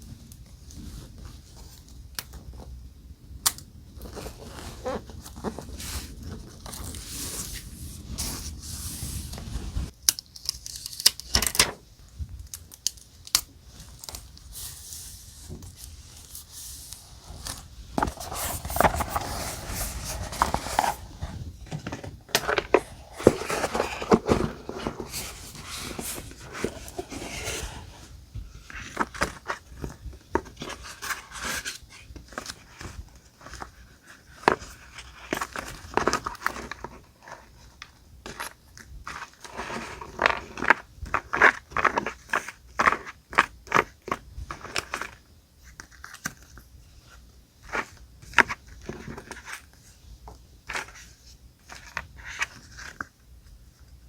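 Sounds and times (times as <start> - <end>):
paper rustling and scraping: 4.0 - 10.0, 13.7 - 37.7, 38.3 - 46.3.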